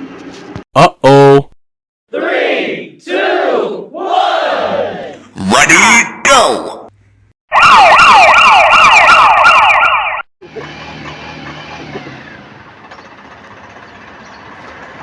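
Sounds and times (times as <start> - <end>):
toy siren wailing: 7.5 - 10.2.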